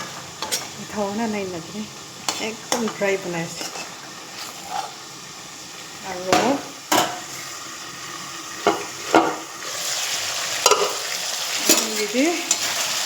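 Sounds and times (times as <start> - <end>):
metal utensil scraping a pan: 0.0 - 0.8, 2.2 - 5.1, 6.3 - 7.6, 8.6 - 13.0
food sizzling in hot oil: 0.0 - 13.0.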